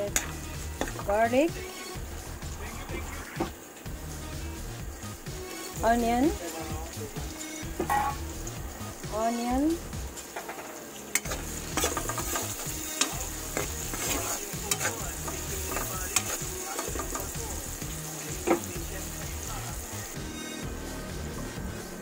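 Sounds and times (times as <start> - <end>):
garlic and onion sizzling in oil: 0.0 - 22.0
utensil scraping and knocking pan: 7.7 - 8.3, 10.3 - 17.4.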